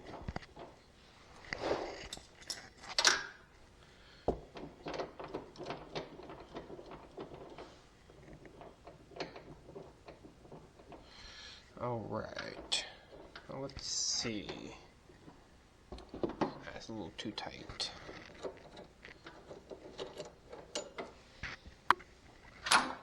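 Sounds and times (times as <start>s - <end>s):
metal clunk: 12.4s - 16.8s.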